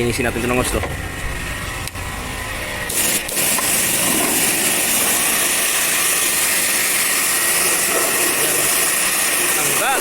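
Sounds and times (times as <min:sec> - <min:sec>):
water jet spraying: 0:02.9 - 0:10.0.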